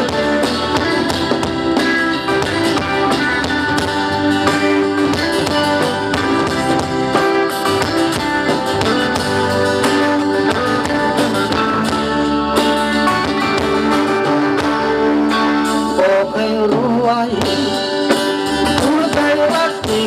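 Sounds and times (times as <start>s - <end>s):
live band playing: 0.0s - 20.0s
person singing: 14.3s - 20.0s.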